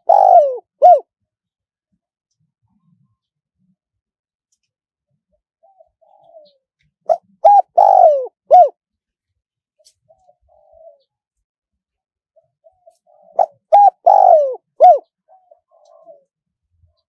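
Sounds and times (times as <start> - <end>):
dove cooing: 0.0 - 1.1, 5.6 - 8.8, 10.1 - 11.1, 12.6 - 16.5.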